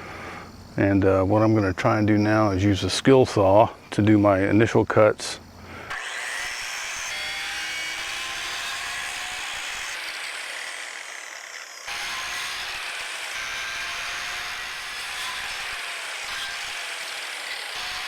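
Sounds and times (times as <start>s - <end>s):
circular saw cutting wood: 5.9s - 18.0s.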